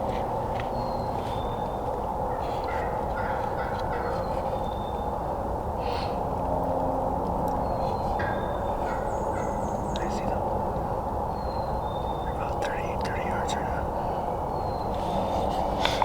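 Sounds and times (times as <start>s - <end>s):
turkey calling: 1.4s - 6.2s, 7.8s - 10.4s.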